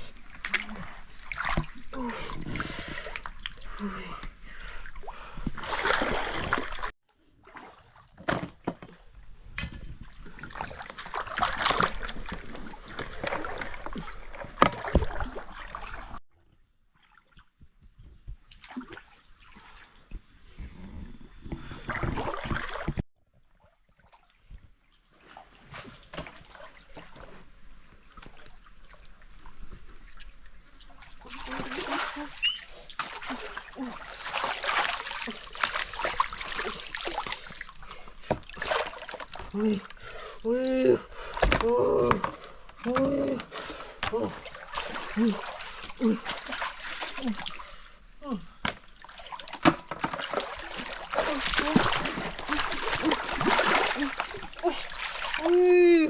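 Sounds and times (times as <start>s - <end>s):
water splashing and sloshing: 0.0s - 16.2s, 16.9s - 56.0s.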